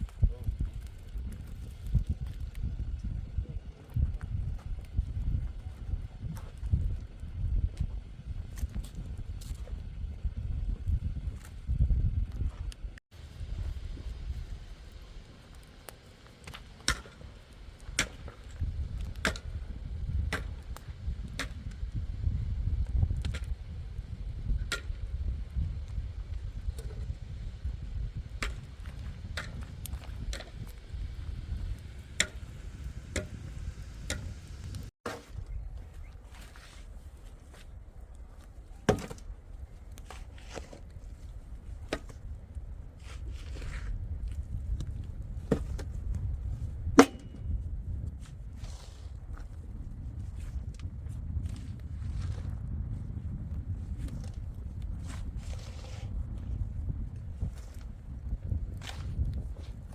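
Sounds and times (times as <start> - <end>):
low rumble: 0.0 - 34.9
soft rustle: 35.2 - 38.8.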